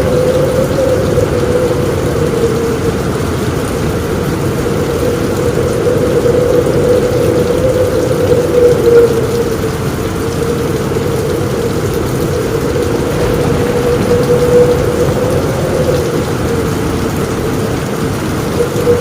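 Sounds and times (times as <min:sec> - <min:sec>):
heavy rain on a roof: 0:00.0 - 0:19.0
low rumble: 0:09.1 - 0:18.6.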